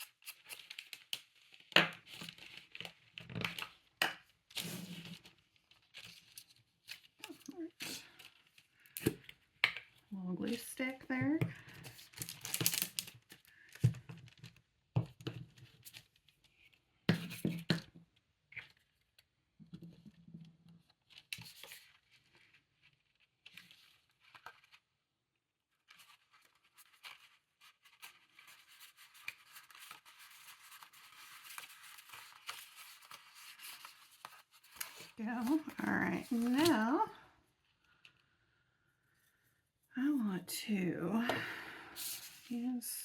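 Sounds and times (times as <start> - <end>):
paper rustling and tearing: 0.0 - 3.8, 4.5 - 8.9, 11.6 - 13.5, 25.8 - 37.1.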